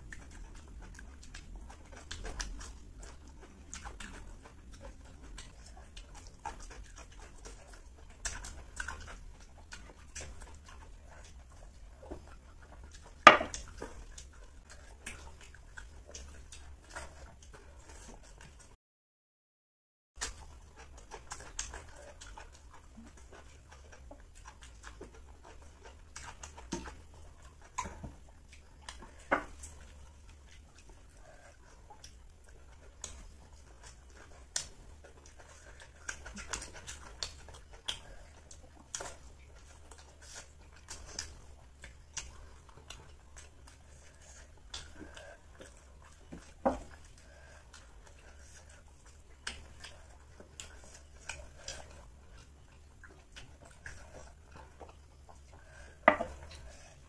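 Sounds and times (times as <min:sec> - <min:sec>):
chewing and mouth smacks: 0:00.0 - 0:18.8, 0:20.2 - 0:57.0.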